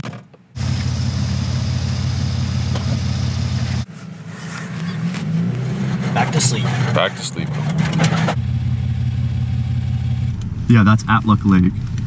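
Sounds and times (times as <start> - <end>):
car engine idling: 0.6 - 10.7.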